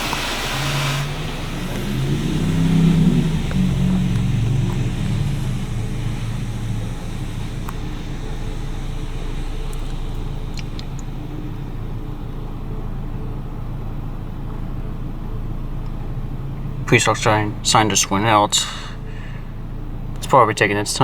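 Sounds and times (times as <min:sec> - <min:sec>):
water spray hiss: 0:00.0 - 0:12.8
car wash equipment hum: 0:00.0 - 0:21.0.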